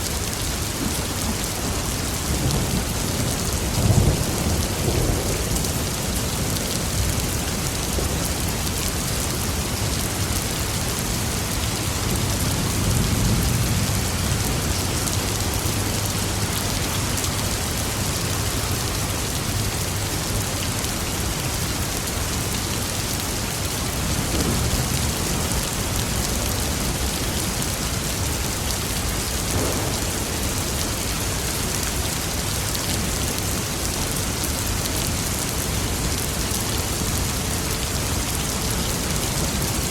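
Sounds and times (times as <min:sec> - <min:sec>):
heavy rain falling: 0:00.0 - 0:39.9
low thunder rumbling: 0:23.9 - 0:33.2.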